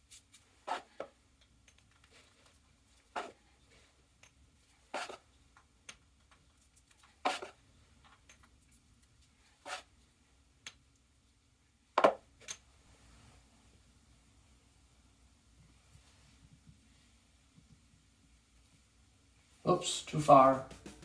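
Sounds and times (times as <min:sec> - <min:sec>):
scraping drywall compound: 0:00.5 - 0:01.0, 0:04.8 - 0:05.3, 0:07.2 - 0:07.6.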